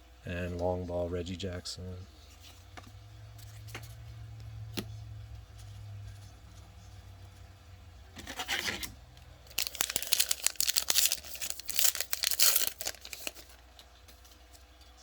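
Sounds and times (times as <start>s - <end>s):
wrapper tearing and crinkling: 9.5s - 13.6s.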